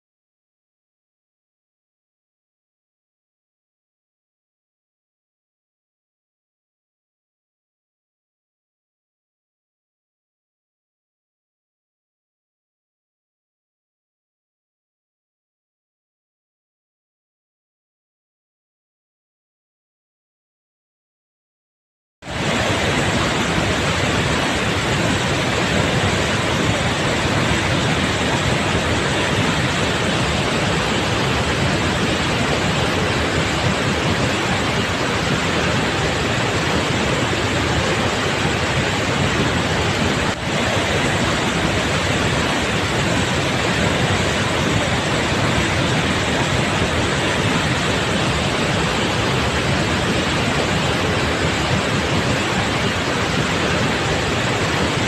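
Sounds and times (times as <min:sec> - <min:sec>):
waterfall rushing: 0:22.3 - 0:55.0.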